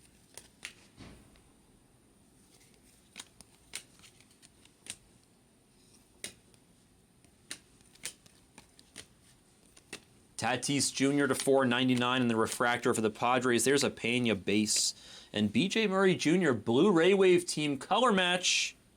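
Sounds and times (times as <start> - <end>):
cards clicking and flicking: 0.0 - 1.5, 2.5 - 13.9.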